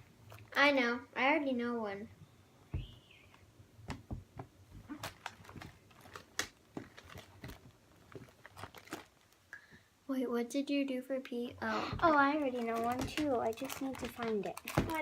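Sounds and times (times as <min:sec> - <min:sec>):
hands rummaging through toys: 0:04.8 - 0:09.4, 0:11.8 - 0:15.0.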